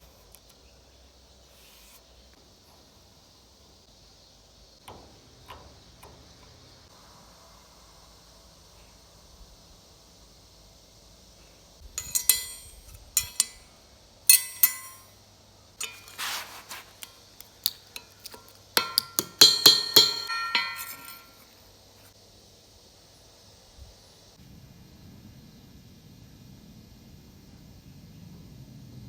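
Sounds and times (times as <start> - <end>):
metal tools clinking together: 11.9 - 13.7, 14.3 - 15.1, 15.8 - 16.8, 18.0 - 21.4.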